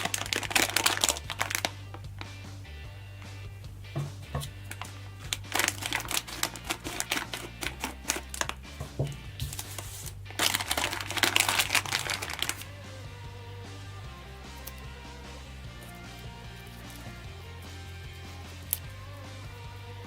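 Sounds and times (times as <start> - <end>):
crinkling and crackling: 0.0 - 2.4, 3.8 - 12.7
background music: 0.0 - 20.0.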